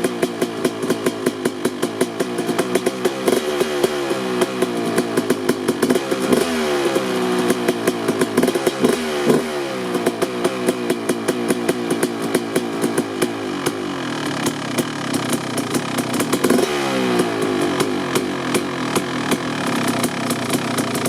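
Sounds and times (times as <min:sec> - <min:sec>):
two-stroke engine idling unevenly: 0:00.0 - 0:21.0.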